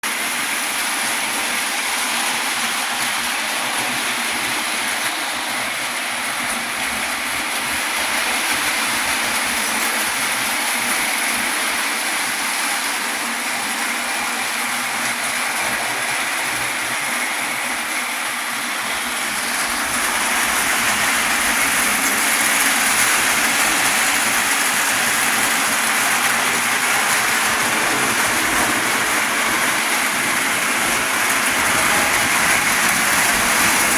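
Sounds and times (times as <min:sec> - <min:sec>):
toy train running on track: 0:00.0 - 0:33.9.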